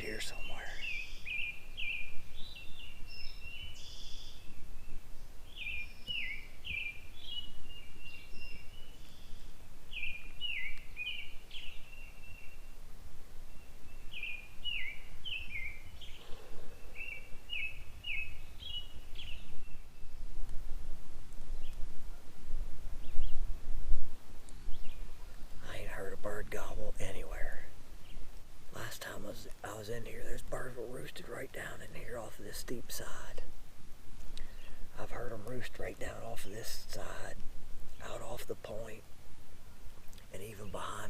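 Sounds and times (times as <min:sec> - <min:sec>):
songbird singing down-slurred notes: 0:00.0 - 0:20.3, 0:21.5 - 0:22.2, 0:22.8 - 0:23.6, 0:24.4 - 0:33.6, 0:34.3 - 0:41.0
low wind rumble on microphone: 0:00.0 - 0:28.8.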